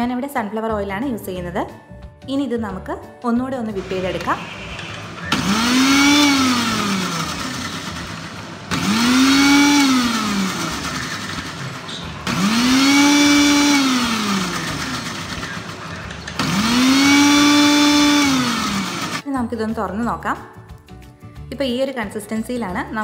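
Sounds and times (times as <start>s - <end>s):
mixer grinder whirring: 3.8s - 19.2s.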